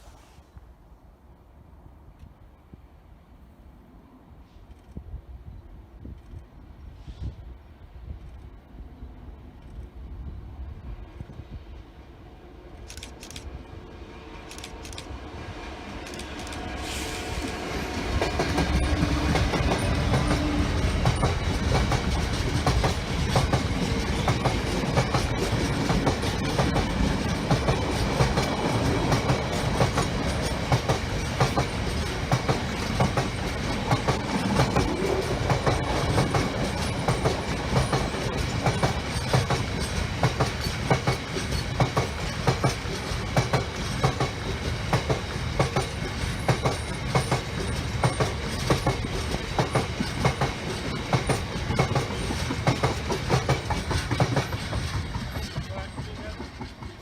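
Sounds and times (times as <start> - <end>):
train rumbling past: 1.2 - 57.0
train wheels clattering over rail joints: 17.9 - 57.0.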